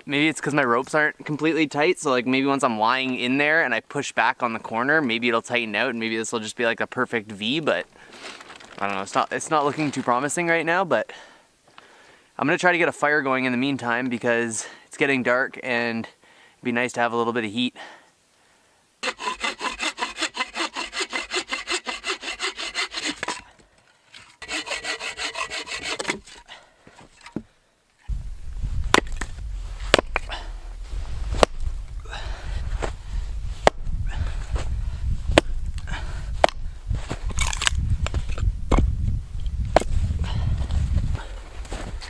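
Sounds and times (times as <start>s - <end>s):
wood cracking: 8.2s - 9.8s, 28.9s - 30.4s, 37.2s - 38.8s
hand saw cutting wood: 19.0s - 23.5s, 24.2s - 26.5s
low rumbling noise: 28.1s - 41.2s.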